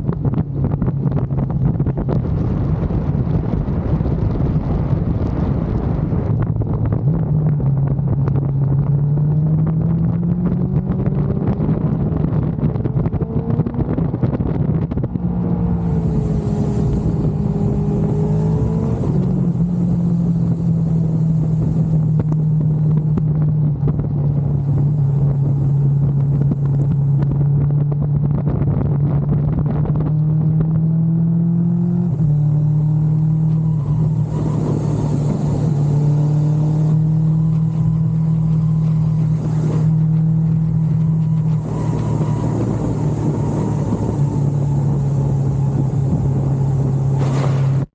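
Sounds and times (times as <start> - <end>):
motorcycle engine running: 0.0 - 47.9
wind rush: 0.0 - 47.9.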